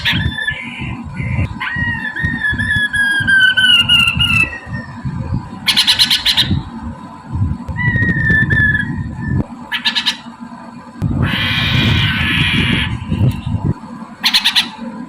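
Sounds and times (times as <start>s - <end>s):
bird whistled notes: 0.0s - 5.1s, 7.8s - 10.2s
bird harsh chattering: 0.0s - 6.7s, 7.8s - 10.3s, 11.2s - 13.4s, 14.2s - 14.8s.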